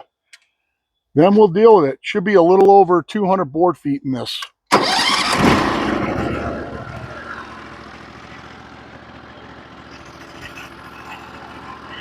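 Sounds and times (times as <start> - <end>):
sawmill engine idling: 4.8 - 12.0.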